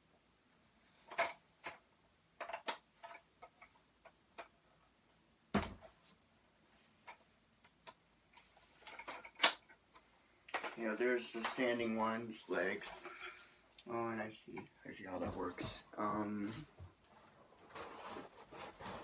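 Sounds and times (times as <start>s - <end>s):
clicks and knocks of handling: 2.4s - 4.6s, 7.0s - 10.8s.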